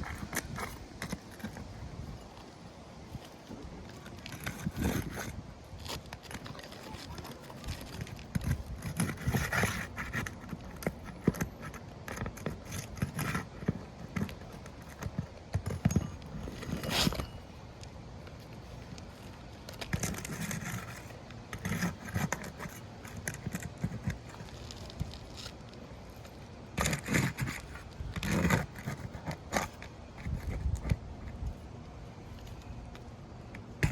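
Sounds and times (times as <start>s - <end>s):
roof shingles scraping: 3.3s - 17.4s.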